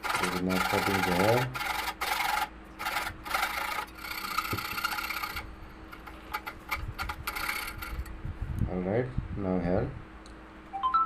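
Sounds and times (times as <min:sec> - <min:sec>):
hand saw cutting: 0:00.0 - 0:08.1.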